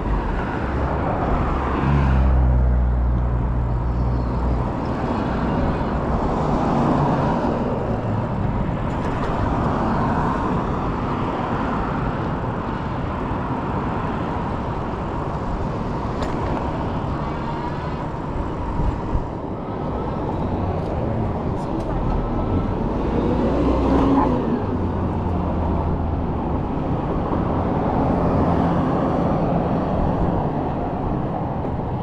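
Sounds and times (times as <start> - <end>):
street traffic noise: 0.0 - 32.0
wind rumbling on microphone: 0.0 - 32.0.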